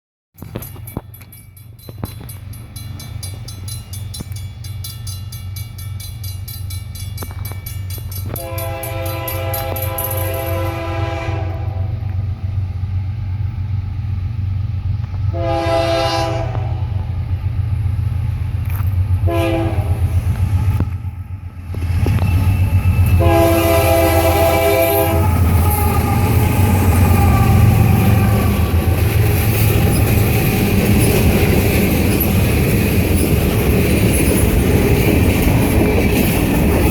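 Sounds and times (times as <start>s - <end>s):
locomotive engine drone: 0.4s - 36.9s
locomotive air horn blasts: 8.3s - 12.1s, 15.3s - 17.0s, 19.2s - 20.2s, 23.2s - 30.8s
wheels clattering over rails: 25.4s - 36.9s.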